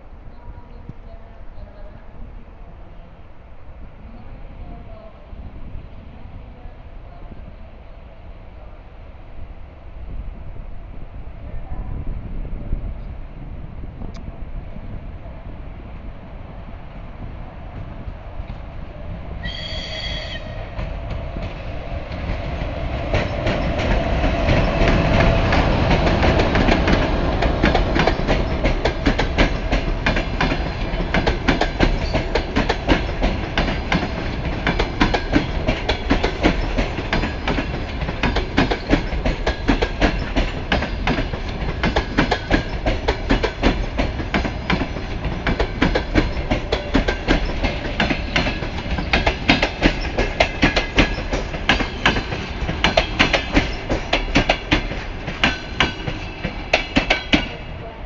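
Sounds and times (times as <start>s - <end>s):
train wheels clickety-clack: 19.5s - 57.6s.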